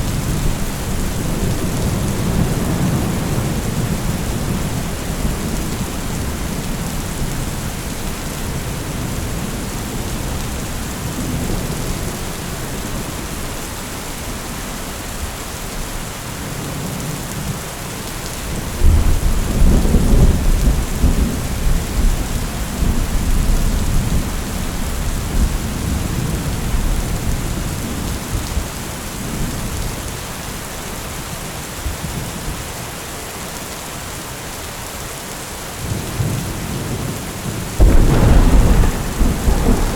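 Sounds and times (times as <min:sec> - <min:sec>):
steady rain: 0:00.0 - 0:39.9
thunder rumbling: 0:37.5 - 0:39.9.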